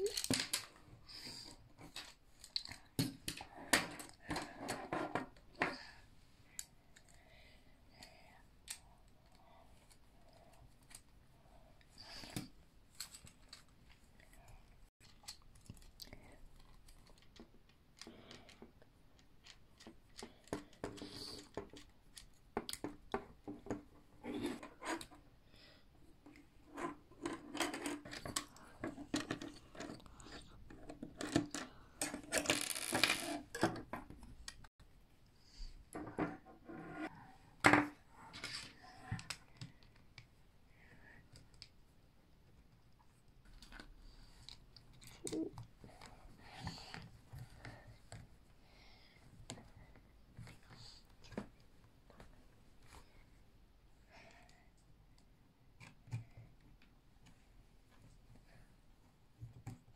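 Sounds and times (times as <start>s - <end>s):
plastic parts clicking and rattling: 0.0s - 5.8s, 12.1s - 25.2s, 26.3s - 34.7s.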